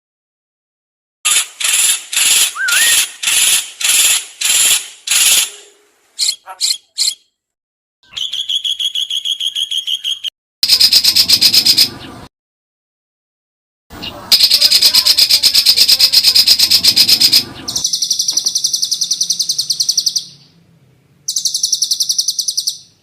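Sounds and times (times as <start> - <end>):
fast chattering bird trill: 1.3 - 7.3, 8.1 - 12.1, 14.0 - 20.4, 21.3 - 23.0
songbird calls: 2.5 - 3.5, 4.5 - 7.3, 8.0 - 12.3, 14.0 - 20.6, 21.2 - 23.0.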